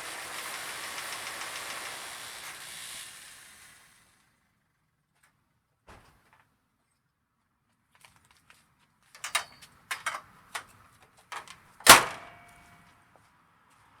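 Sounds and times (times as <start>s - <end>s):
clicks and knocks: 9.2s - 10.2s, 11.4s - 12.6s
loud metallic slam: 11.9s - 12.4s.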